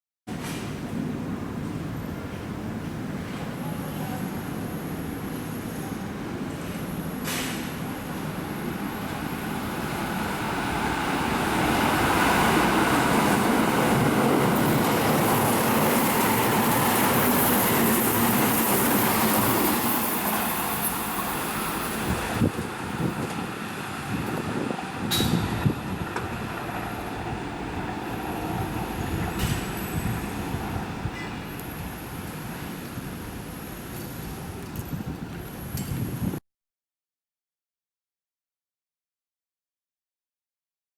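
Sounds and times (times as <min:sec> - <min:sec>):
electric train passing: 0:04.3 - 0:34.6.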